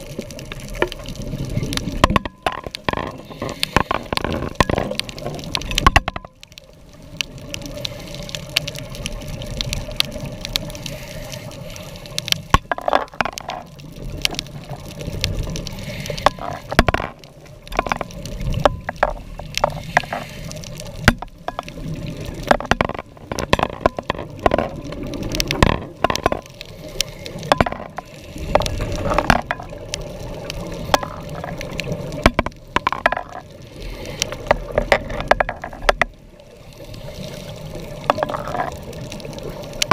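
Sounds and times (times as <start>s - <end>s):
underwater clicks and crackles: 0.0s - 39.9s
underwater noise: 0.0s - 39.9s
exhaled bubbles gushing: 12.2s - 39.9s.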